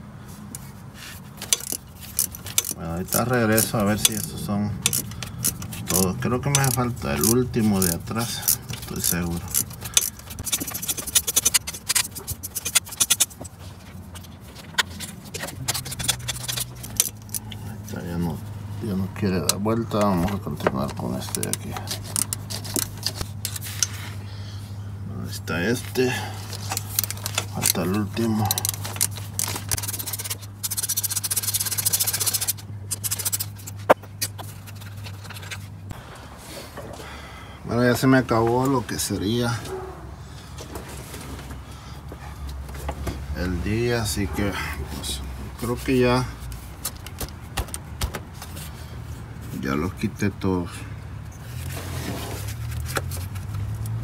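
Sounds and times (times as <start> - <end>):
low steady hum: 0.0 - 54.0
tool scraping: 0.5 - 24.2, 25.6 - 37.0, 51.3 - 54.0
ratchet clicking on a bolt: 1.4 - 13.4, 15.6 - 17.4, 21.3 - 23.9, 26.7 - 33.6.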